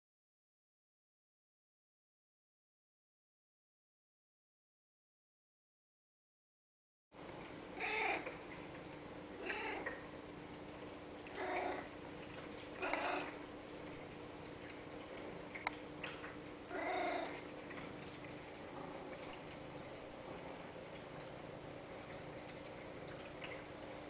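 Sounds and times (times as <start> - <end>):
faint hum: 7.2 - 24.0
cat meowing: 7.8 - 8.3, 9.4 - 10.0, 11.3 - 11.9, 12.8 - 13.4, 16.7 - 17.4.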